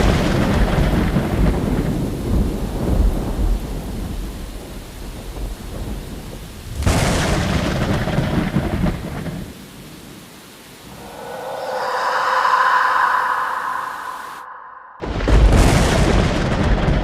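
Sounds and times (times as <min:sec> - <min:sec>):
sharp thunderclap: 0:00.0 - 0:04.2, 0:06.6 - 0:09.5, 0:15.0 - 0:17.0
thunder rumbling: 0:00.0 - 0:04.4, 0:10.8 - 0:17.0.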